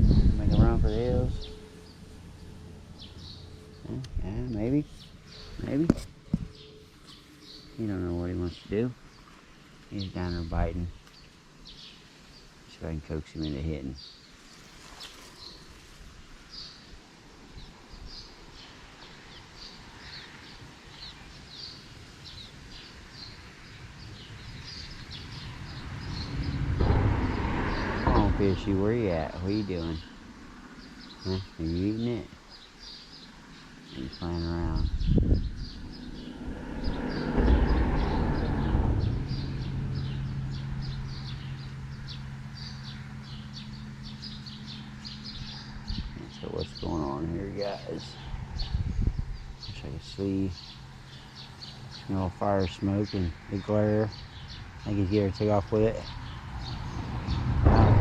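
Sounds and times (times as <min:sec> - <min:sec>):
steady low hum: 0:00.0 - 0:14.8
low outdoor rumble: 0:00.0 - 0:17.9, 0:23.6 - 0:32.5, 0:33.4 - 0:58.0
birds chirping: 0:00.0 - 0:58.0.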